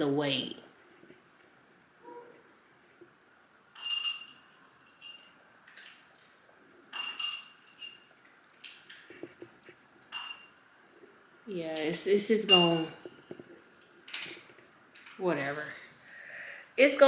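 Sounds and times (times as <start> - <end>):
bright ringing clinks: 3.8 - 5.4, 6.9 - 8.2, 10.1 - 11.4, 12.4 - 13.4.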